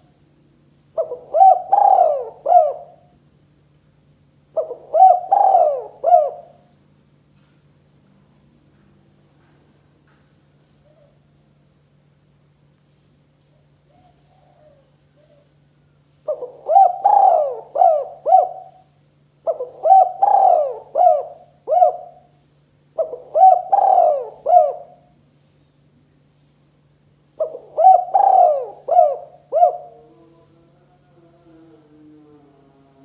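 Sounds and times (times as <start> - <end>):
dove cooing: 1.0 - 3.1, 4.6 - 6.7, 13.9 - 15.5, 16.2 - 22.3, 23.0 - 25.2, 27.4 - 30.6.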